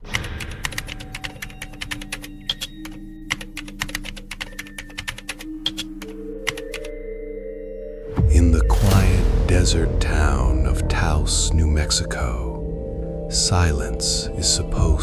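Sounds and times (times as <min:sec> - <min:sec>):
typing on a computer keyboard: 0:00.2 - 0:06.9
low steady drone: 0:08.2 - 0:15.0.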